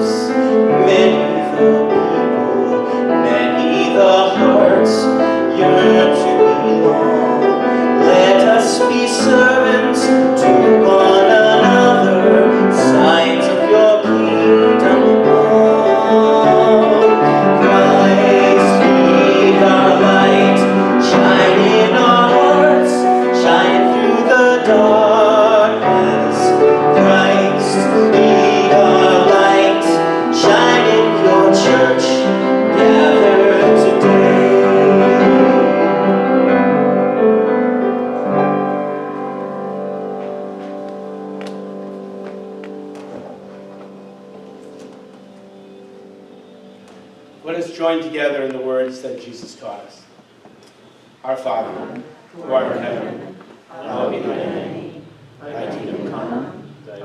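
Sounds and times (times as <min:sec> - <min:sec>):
person singing with vibrato: 0:00.0 - 0:37.0
piano playing: 0:00.0 - 0:48.9, 0:52.1 - 0:57.0.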